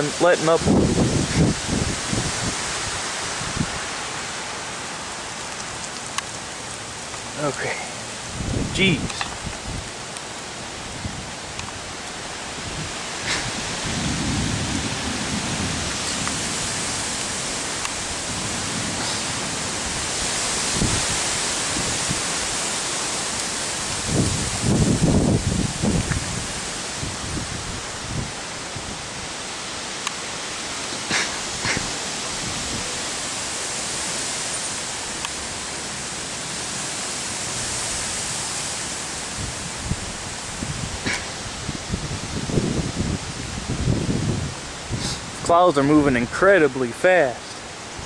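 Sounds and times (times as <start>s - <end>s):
heavy rain: 0.0s - 48.0s
wind gusts buffeting microphone: 0.1s - 4.3s, 7.1s - 29.4s, 30.9s - 33.2s, 39.2s - 48.0s.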